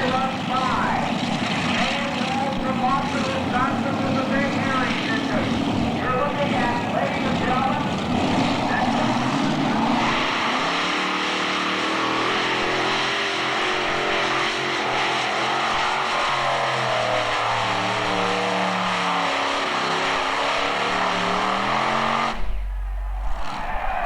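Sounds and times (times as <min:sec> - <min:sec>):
tractor engine at high revs: 0:00.0 - 0:24.0
brief low hum: 0:22.4 - 0:24.0.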